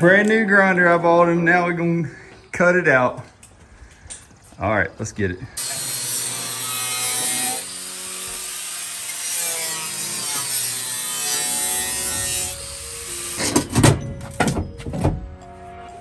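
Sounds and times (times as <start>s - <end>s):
angle grinder cutting metal: 5.6s - 13.7s.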